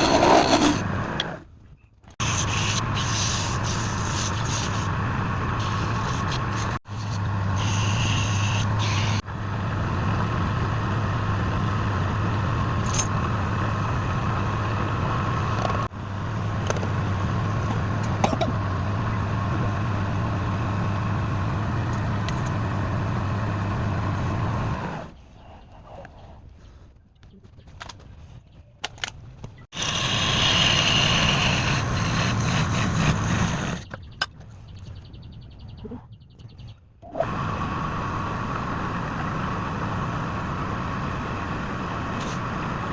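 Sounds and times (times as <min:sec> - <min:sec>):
tool rubbing spinning wood: 0:00.0 - 0:01.4, 0:02.2 - 0:09.2, 0:29.7 - 0:33.9
lathe motor humming: 0:29.8 - 0:33.8.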